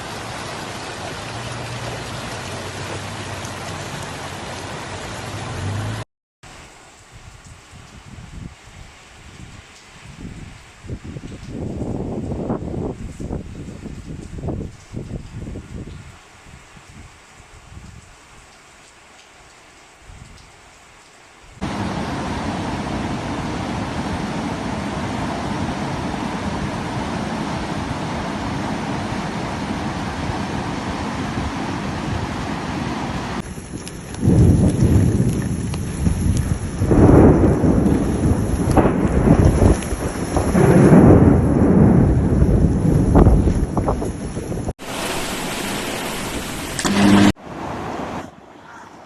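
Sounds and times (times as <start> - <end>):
heavy rain hissing: 0.0 - 8.5, 21.6 - 48.2
thunder rumbling: 33.4 - 47.4.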